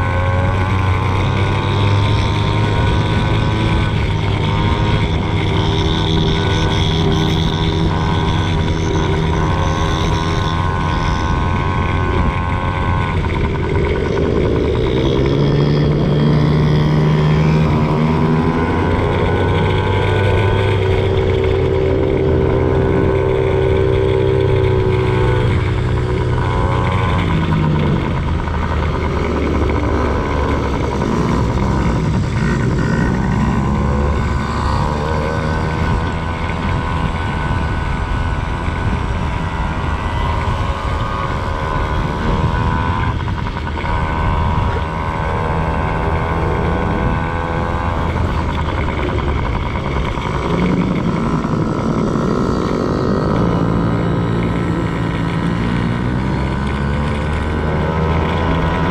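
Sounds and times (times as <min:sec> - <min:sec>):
dirt bike engine revving: 0:00.0 - 0:58.9
heavy low rumble: 0:00.0 - 0:58.9.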